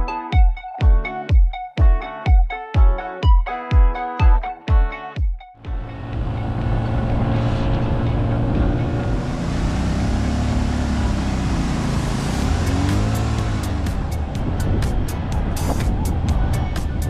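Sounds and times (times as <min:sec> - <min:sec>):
motorcycle engine running: 0:05.6 - 0:17.0.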